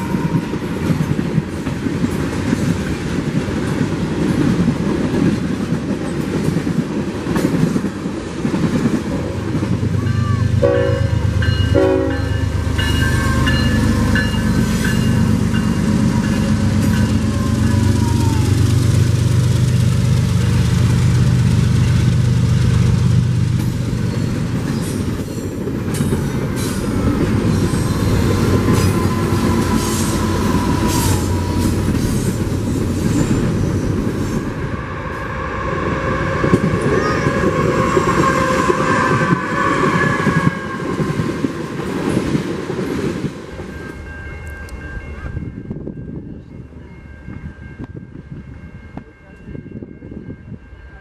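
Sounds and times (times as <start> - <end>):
diesel locomotive rumbling past: 0.0 - 51.0
high wheel squeal: 35.2 - 41.2.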